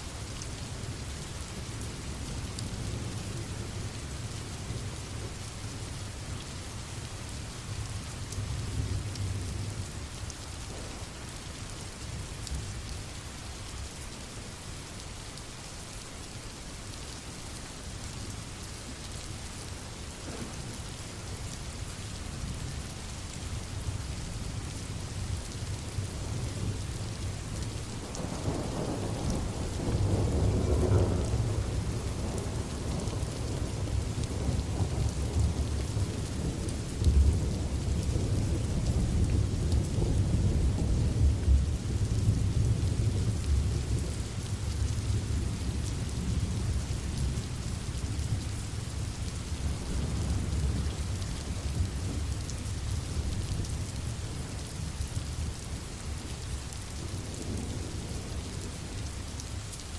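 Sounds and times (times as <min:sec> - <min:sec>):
steady rain falling: 0:00.0 - 0:59.9
low rolling thunder: 0:28.0 - 0:47.4.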